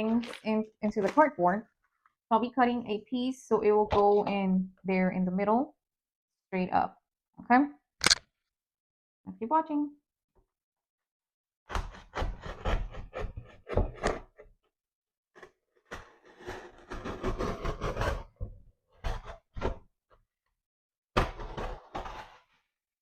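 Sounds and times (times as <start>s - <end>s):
cardboard rasping and scraping: 11.7s - 14.5s, 15.4s - 19.8s, 21.2s - 22.8s.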